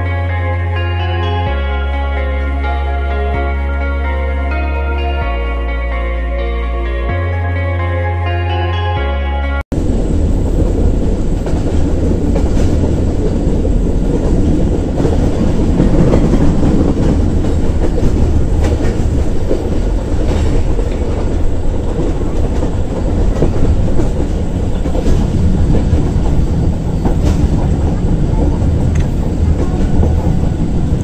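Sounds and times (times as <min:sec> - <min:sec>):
train wheels rumbling on track: 0:09.7 - 0:31.0.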